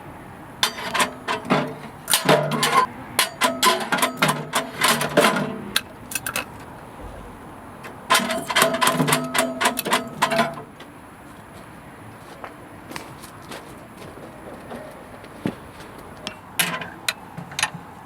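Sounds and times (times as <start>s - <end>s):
metal pieces clinking: 6.1s - 6.5s.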